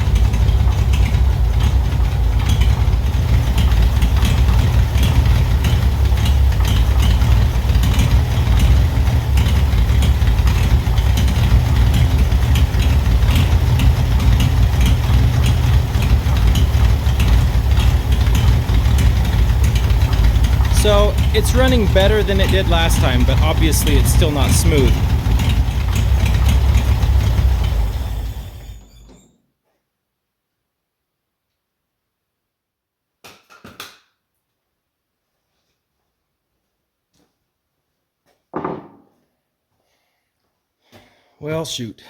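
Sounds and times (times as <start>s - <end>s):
tractor engine idling unevenly: 0.0s - 29.1s.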